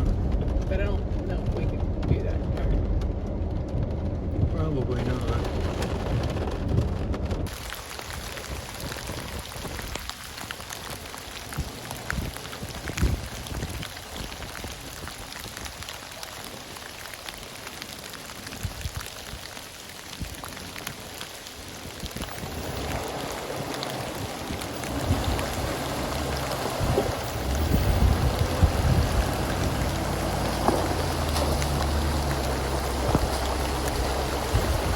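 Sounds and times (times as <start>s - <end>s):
low rumble: 0.0s - 7.8s, 22.2s - 34.9s
rain falling: 0.0s - 34.9s.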